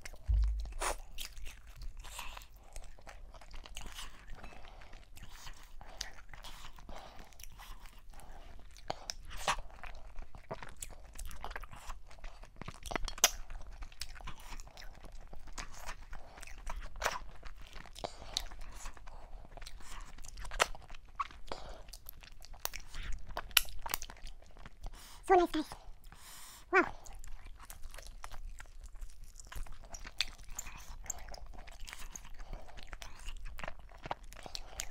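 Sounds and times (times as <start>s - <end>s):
person chewing food: 0.0s - 34.9s
sharp bites: 0.3s - 1.3s.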